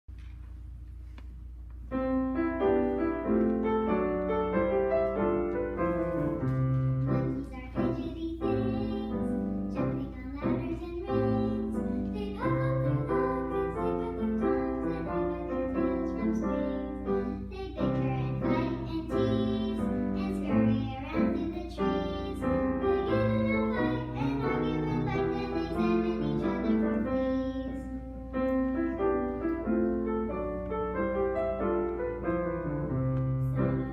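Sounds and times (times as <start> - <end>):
piano accompaniment: 0.6 - 33.9.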